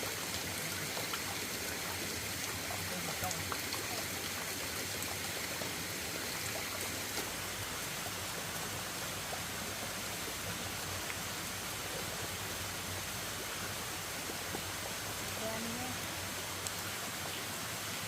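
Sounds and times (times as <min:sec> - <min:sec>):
steady water noise: 0:00.0 - 0:18.0.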